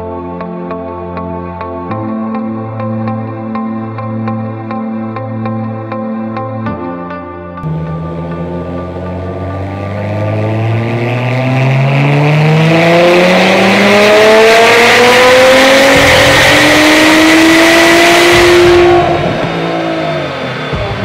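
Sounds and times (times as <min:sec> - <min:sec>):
car engine at full throttle: 0:07.6 - 0:21.0.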